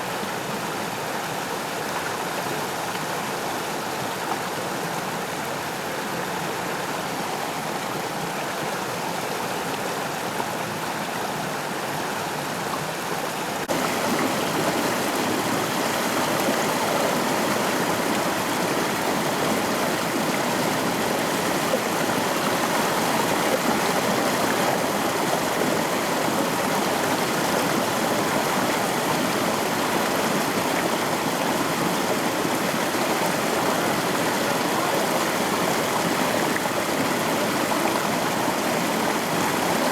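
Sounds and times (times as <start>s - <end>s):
river water rushing over rocks: 9.6s - 39.9s.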